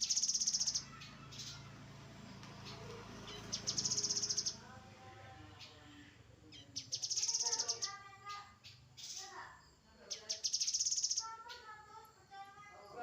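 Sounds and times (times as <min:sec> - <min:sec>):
bird trilling: 0:00.0 - 0:01.7, 0:02.6 - 0:04.6, 0:06.4 - 0:09.4, 0:10.1 - 0:11.7.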